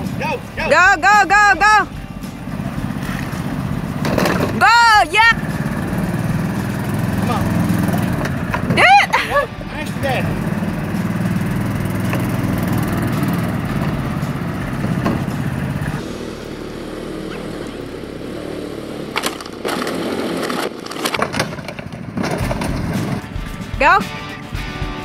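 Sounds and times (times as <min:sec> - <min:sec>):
small engine running: 0:00.0 - 0:24.0
plastic toy cracking and breaking: 0:19.2 - 0:22.5.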